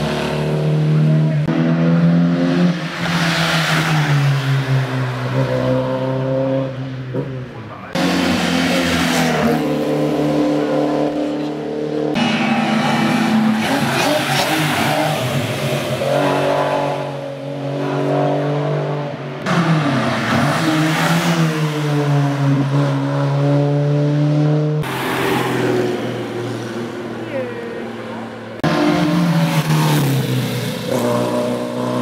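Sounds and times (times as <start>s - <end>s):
racing car engines accelerating: 0.0s - 32.0s.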